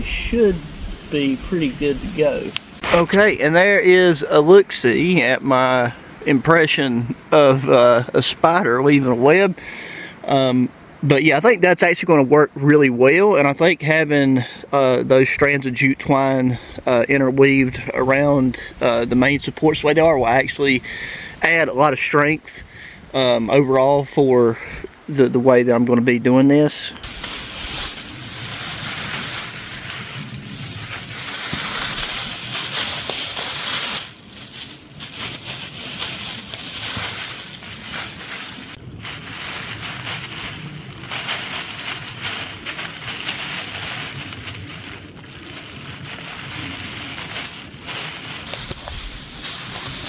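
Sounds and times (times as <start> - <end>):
plastic sheeting crinkling: 0.0 - 5.4, 27.0 - 50.0.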